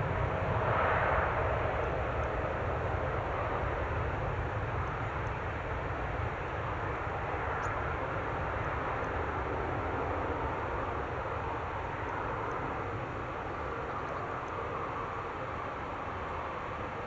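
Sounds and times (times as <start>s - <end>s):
jet airliner engines: 0.0s - 17.0s.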